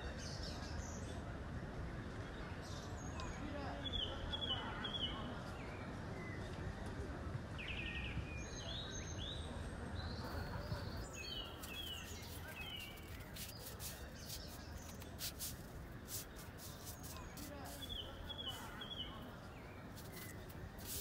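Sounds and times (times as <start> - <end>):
small birds chirping: 10.2 - 21.0.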